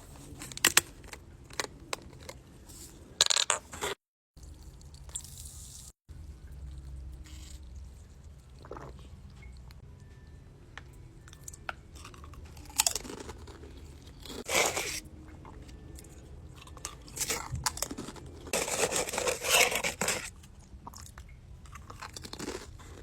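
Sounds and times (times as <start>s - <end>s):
crunching and chewing snacks: 0.2s - 2.4s, 6.6s - 9.6s, 11.3s - 23.0s.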